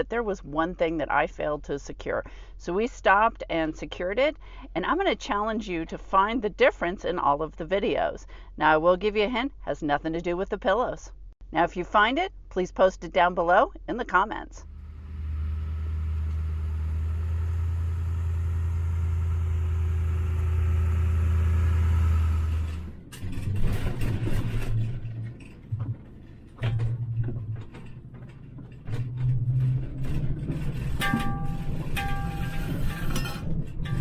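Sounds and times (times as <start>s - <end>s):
vehicle driving drone: 14.6s - 23.1s
trailer road rumble: 14.6s - 34.0s.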